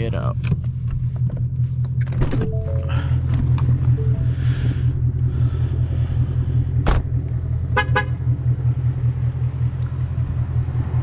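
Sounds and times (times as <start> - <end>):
car engine droning: 0.0 - 11.0
car horn toots: 7.7 - 8.2.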